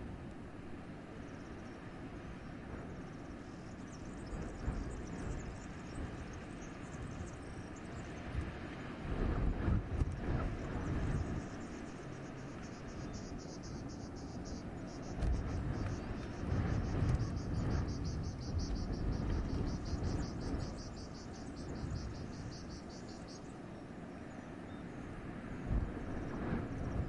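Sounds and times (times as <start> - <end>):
wind gusting through forest: 0.0 - 27.0
rapid high-pitched pulsing call: 12.3 - 16.1, 16.7 - 23.5.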